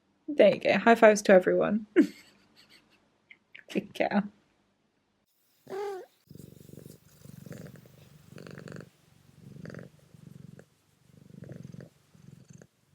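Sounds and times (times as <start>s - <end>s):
cat purring: 5.6s - 12.9s
cat chirping: 5.7s - 7.8s.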